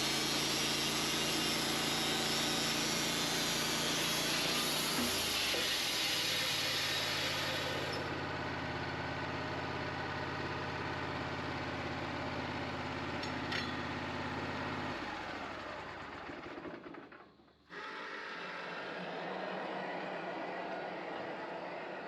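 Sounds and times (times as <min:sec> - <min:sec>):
high hiss of saw cutting: 0:00.0 - 0:08.1
sawmill engine running: 0:00.0 - 0:22.0.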